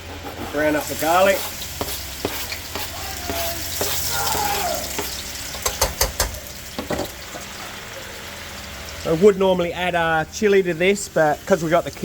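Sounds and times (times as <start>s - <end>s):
garlic sizzling in oil: 0.8s - 12.0s
utensil clicking against pan: 5.0s - 6.5s.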